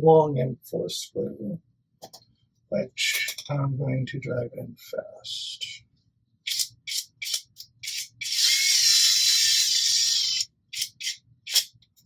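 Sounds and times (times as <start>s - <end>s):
electric screwdriver driving screw: 6.5s - 11.7s.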